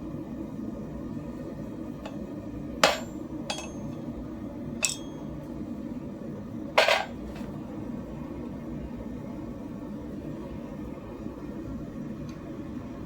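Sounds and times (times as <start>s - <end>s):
hammer striking metal: 2.8s - 4.0s, 4.8s - 5.3s.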